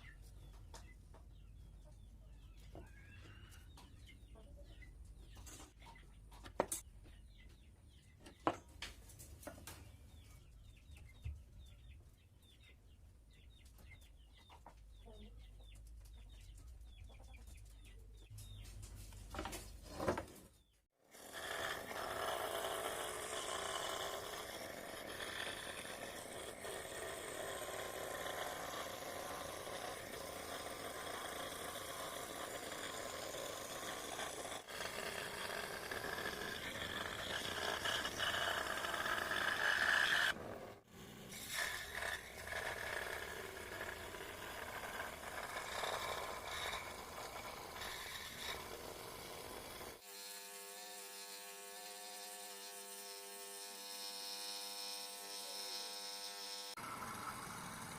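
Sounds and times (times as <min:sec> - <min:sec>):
small electric motor buzzing: 0:21.1 - 0:57.9.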